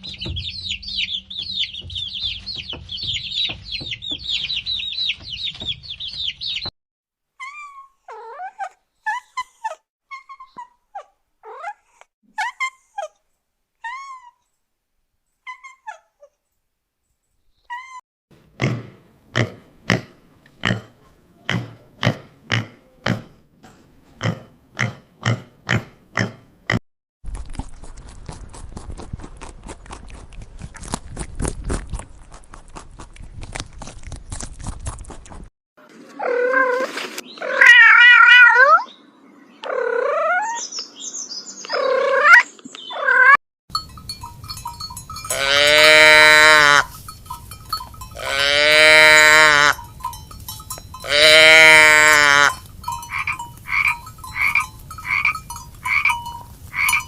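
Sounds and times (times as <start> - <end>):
cat meowing: 37.4 - 38.9.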